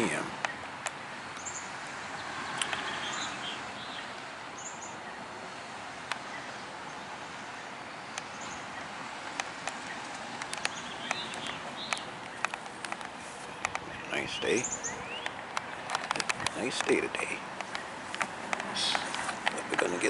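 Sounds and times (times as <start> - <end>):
birds chirping: 0.0 - 20.0
steady background hiss: 0.0 - 20.0
small sharp clicks: 9.2 - 13.9, 15.2 - 19.9.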